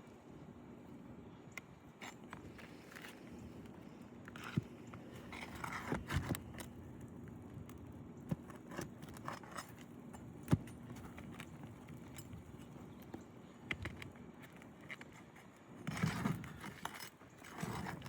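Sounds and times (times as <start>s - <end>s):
hand tool scraping on roof: 4.4s - 6.5s, 15.8s - 18.0s.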